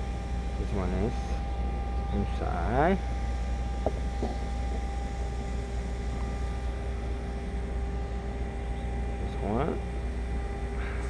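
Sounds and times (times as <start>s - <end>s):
faint steady tones: 0.0s - 11.0s
low background hum: 0.0s - 11.0s.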